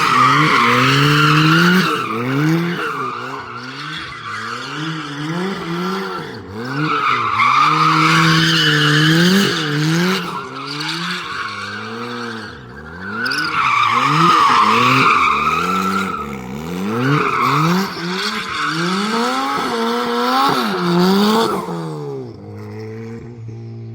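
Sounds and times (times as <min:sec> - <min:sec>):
car engine revving: 0:00.0 - 0:23.9
tyres squealing: 0:06.8 - 0:19.4.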